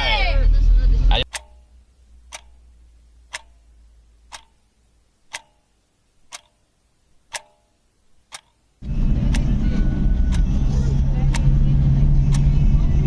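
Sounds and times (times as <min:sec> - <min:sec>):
clock ticking: 0:01.1 - 0:12.8.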